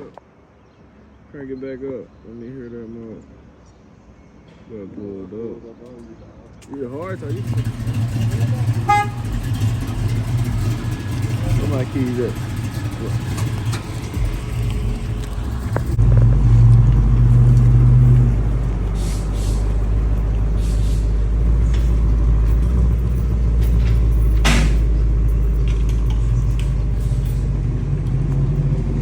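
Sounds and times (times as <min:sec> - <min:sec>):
car engine exhaust rumble: 0:06.8 - 0:29.0.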